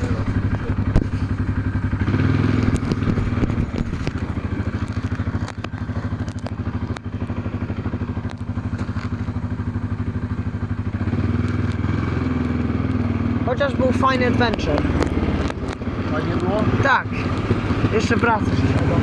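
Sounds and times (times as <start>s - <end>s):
quad bike engine running: 0.0s - 19.0s
sharp clicks: 0.2s - 7.4s, 14.3s - 17.9s.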